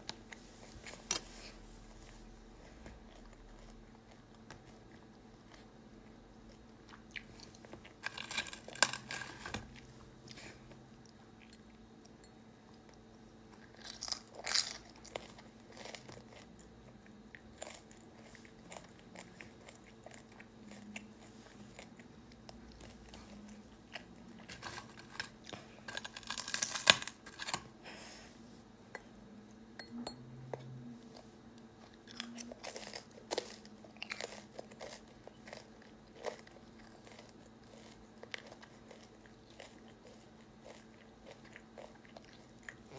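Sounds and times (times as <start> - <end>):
person chewing and crunching food: 0.0 - 27.8, 30.5 - 42.9.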